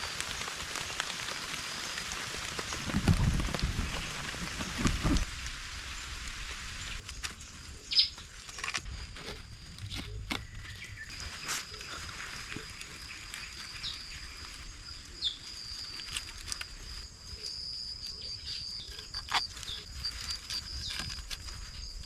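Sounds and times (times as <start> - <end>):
insect high-pitched drone: 5.9 - 22.0.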